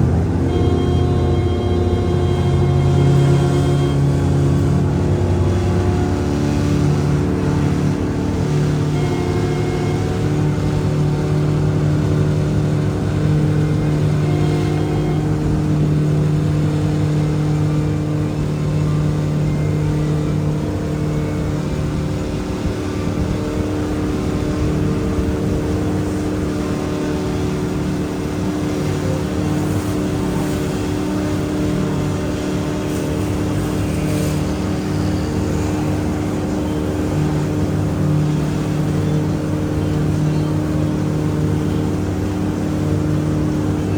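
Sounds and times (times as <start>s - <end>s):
ferry boat engine droning: 0.0s - 43.9s.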